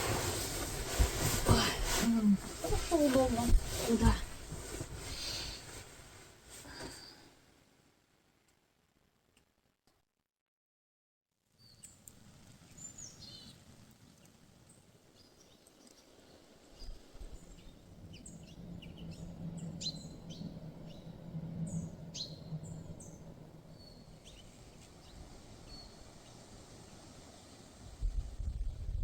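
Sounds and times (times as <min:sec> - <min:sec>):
songbirds chirping: 0:11.6 - 0:27.8.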